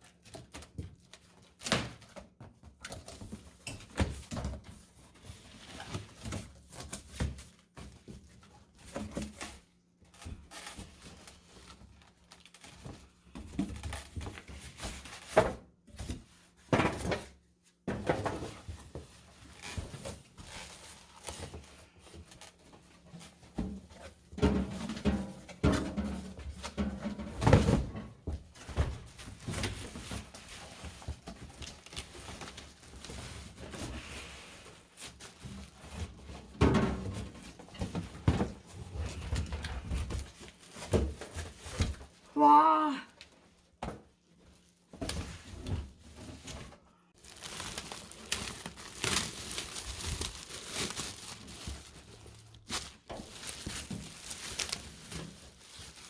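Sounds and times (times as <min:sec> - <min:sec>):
cardboard packaging knocks and rustling: 0:12.6 - 0:20.5, 0:23.2 - 0:33.9, 0:35.0 - 0:42.2, 0:43.8 - 0:56.0.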